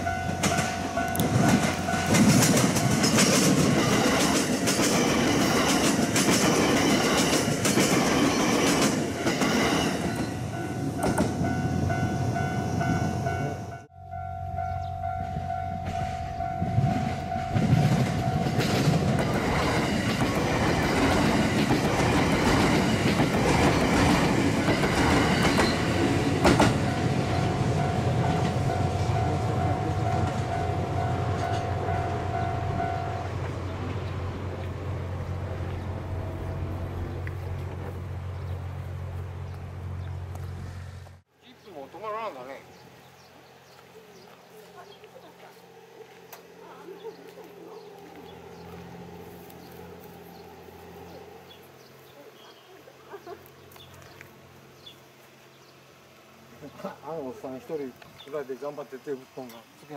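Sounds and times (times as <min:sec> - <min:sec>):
train wheels clacking over rail joints: 0:00.2 - 0:10.4, 0:16.8 - 0:27.5
steady high tone: 0:09.1 - 0:19.5, 0:25.5 - 0:37.6.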